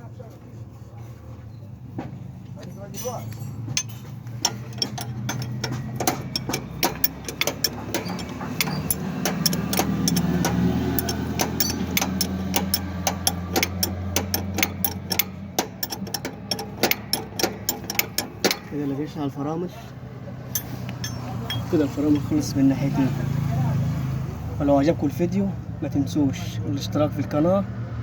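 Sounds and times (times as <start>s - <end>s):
low engine-like hum: 0.0s - 26.9s
metallic clicks of hand tools: 3.8s - 18.8s, 20.5s - 22.5s.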